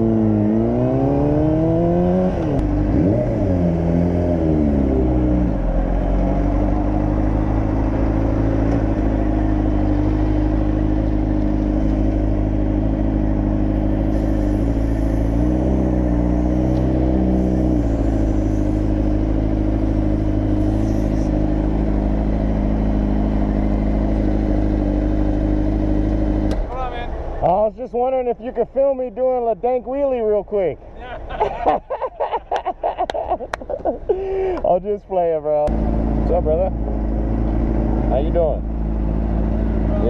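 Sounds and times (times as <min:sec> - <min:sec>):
motorcycle engine running: 0:00.0 - 0:26.5.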